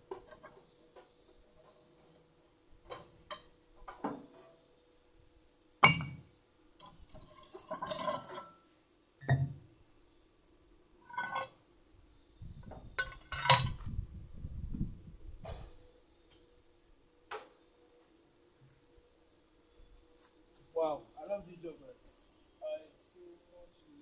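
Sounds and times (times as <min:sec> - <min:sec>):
metal tools clinking and knocking: 0:00.1 - 0:00.6, 0:06.8 - 0:08.6, 0:11.0 - 0:11.6, 0:13.0 - 0:13.8
metal rattle: 0:11.0 - 0:11.6.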